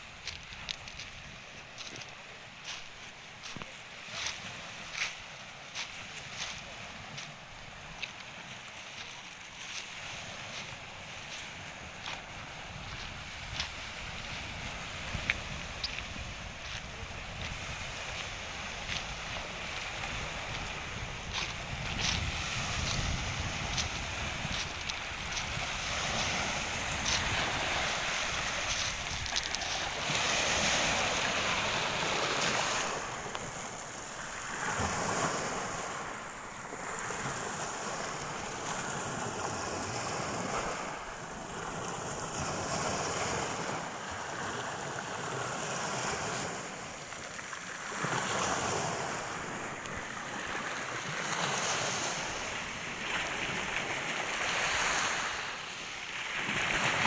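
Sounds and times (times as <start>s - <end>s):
surf breaking on shore: 9.0s - 44.4s, 45.6s - 57.0s
wind buffeting microphone: 11.2s - 43.4s.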